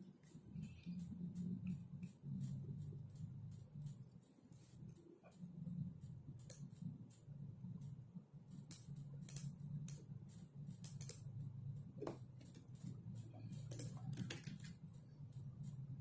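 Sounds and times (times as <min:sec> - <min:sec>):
steady low hum: 0:00.0 - 0:16.0
typing on a keyboard: 0:06.3 - 0:06.8, 0:08.6 - 0:10.1, 0:10.7 - 0:11.3, 0:12.0 - 0:15.8.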